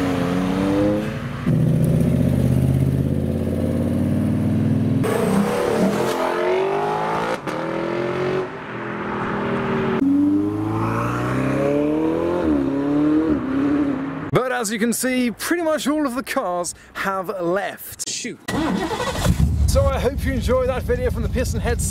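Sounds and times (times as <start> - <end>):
sports cars accelerating: 0.0 - 2.3, 3.4 - 14.3
engines revving through gear changes: 0.0 - 14.3.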